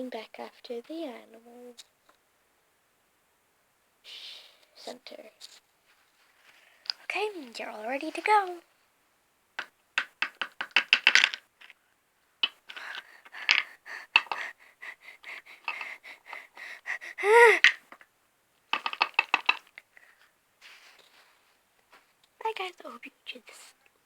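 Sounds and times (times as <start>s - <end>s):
plastic toy figures clicking: 9.6s - 11.8s, 12.4s - 14.6s, 15.3s - 16.5s, 17.2s - 18.0s, 18.7s - 19.9s.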